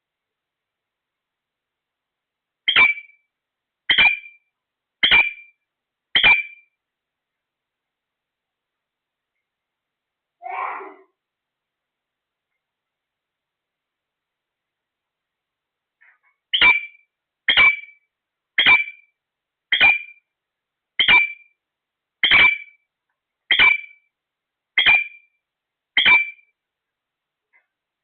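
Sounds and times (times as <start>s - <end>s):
parrot calling: 2.7s - 3.2s, 3.9s - 4.4s, 5.0s - 5.5s, 6.1s - 6.6s, 16.0s - 18.0s, 18.6s - 19.0s, 19.7s - 20.2s, 21.0s - 21.5s, 22.2s - 22.8s, 23.5s - 24.0s, 24.8s - 25.3s, 26.0s - 26.4s.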